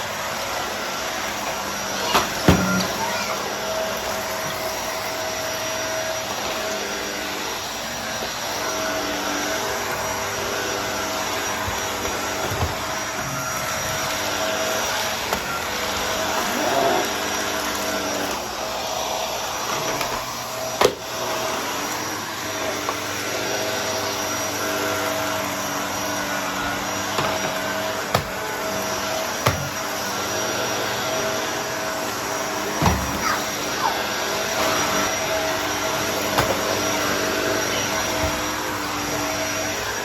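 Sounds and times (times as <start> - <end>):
vacuum cleaner running: 0.0 - 40.0.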